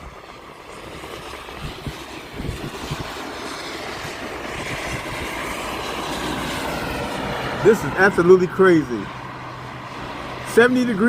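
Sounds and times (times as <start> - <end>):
wind thumping on microphone: 0.0 - 7.0
rushing vehicle noise: 0.0 - 11.0.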